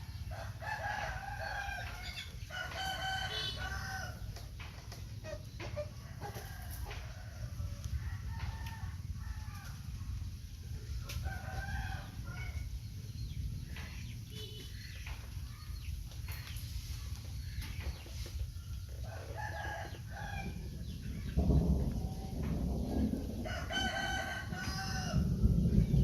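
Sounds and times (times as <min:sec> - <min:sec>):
chickens clucking and cackling: 0:00.0 - 0:26.0
rooster-like drawn-out call: 0:00.3 - 0:04.3, 0:22.9 - 0:25.4
steady low rumble: 0:12.0 - 0:16.2, 0:20.0 - 0:26.0.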